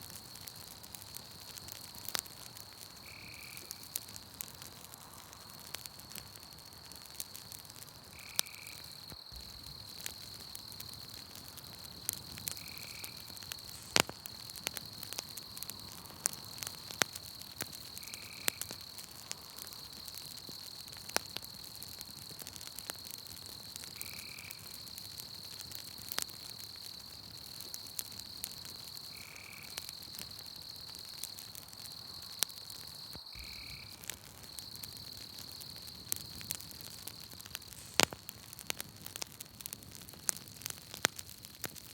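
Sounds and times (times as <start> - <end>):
campfire crackling and popping: 0.0 - 41.9
high-pitched insect trill: 3.0 - 3.9, 8.2 - 20.1, 24.0 - 25.4, 27.8 - 38.2.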